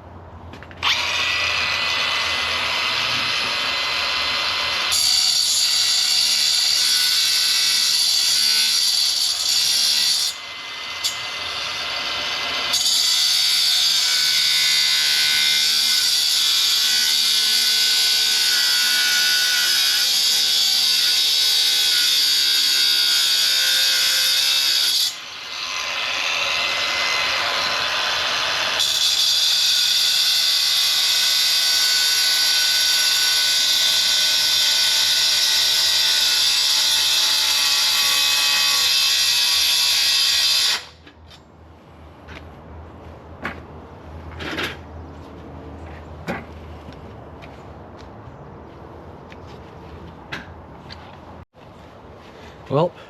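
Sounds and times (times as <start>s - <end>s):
angle grinder cutting steel: 0.8s - 41.0s.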